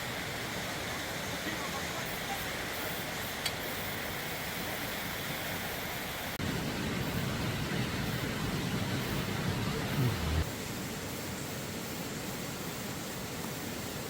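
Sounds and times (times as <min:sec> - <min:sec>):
stream rushing: 0:00.0 - 0:10.9.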